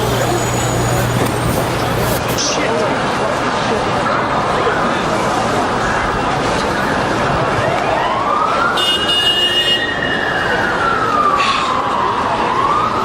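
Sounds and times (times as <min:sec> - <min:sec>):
street noise: 0:00.0 - 0:13.0
emergency siren wailing: 0:06.5 - 0:13.0.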